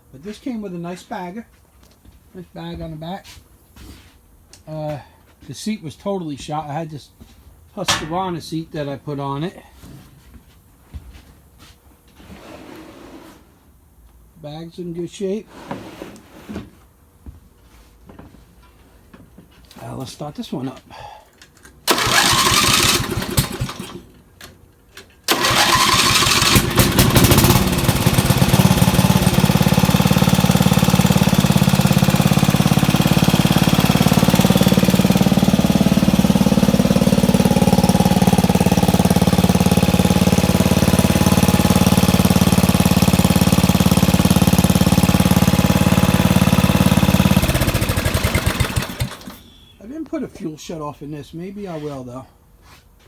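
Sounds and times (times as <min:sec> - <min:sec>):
engine cranking: 0:21.9 - 0:24.0, 0:25.3 - 0:45.1, 0:46.3 - 0:49.4
lawn tractor engine running: 0:21.9 - 0:24.1, 0:25.3 - 0:49.4.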